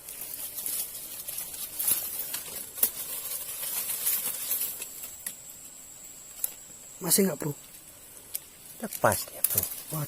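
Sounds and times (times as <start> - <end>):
sharp clicks and rustles: 0.0 - 5.4
insects chirring: 0.0 - 10.0.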